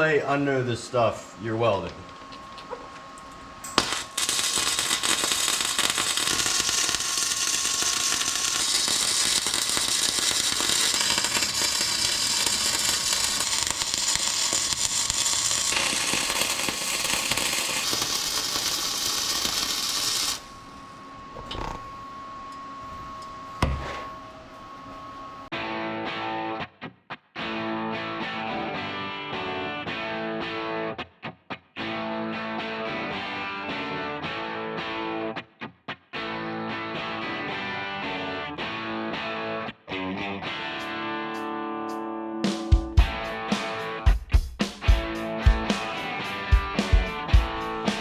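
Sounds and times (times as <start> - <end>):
welding arc crackling: 3.7 - 20.7, 45.5 - 48.0
faint steady hum: 19.2 - 25.5.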